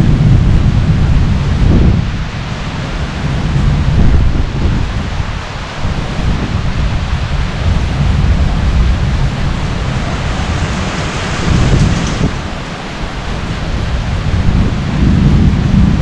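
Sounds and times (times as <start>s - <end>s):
heavy rain: 0.0s - 16.0s
rolling thunder: 0.0s - 16.0s.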